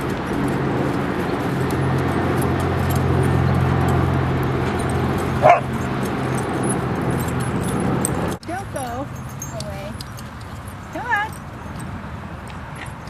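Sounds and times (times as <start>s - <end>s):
steady low hum: 0.0s - 10.0s
dog barking: 5.3s - 5.9s.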